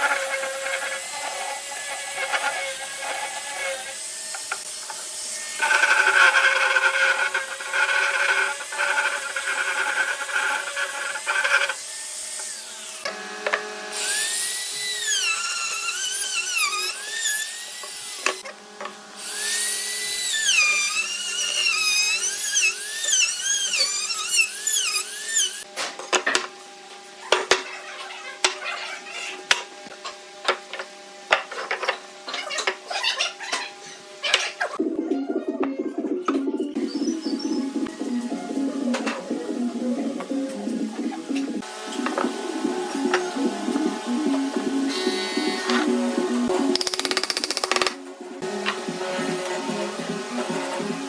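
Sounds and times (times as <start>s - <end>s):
power tool whining on wood: 0.0s - 25.7s, 38.6s - 51.0s.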